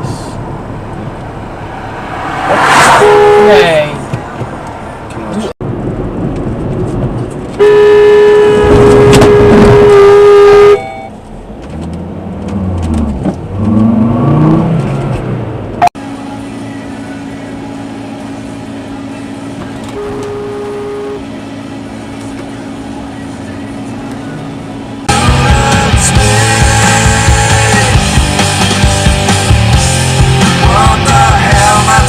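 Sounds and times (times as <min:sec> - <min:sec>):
car horn blaring: 0:02.6 - 0:04.1, 0:07.6 - 0:11.2, 0:15.9 - 0:22.0
engine revving: 0:11.7 - 0:15.5
steady engine drone: 0:15.3 - 0:32.0.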